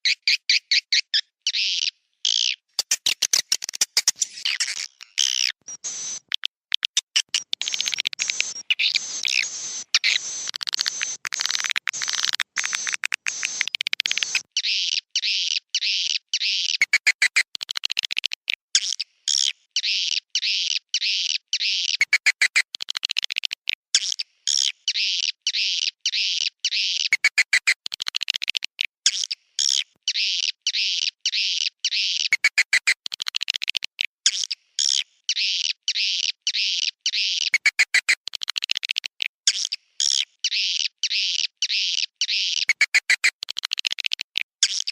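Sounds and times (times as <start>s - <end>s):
high twittering chirps: 0.0s - 17.4s
bursts of rapid clicks: 6.2s - 14.5s, 16.8s - 18.6s, 21.9s - 23.8s, 27.1s - 28.8s, 32.2s - 34.0s, 37.5s - 39.6s, 42.6s - 44.9s.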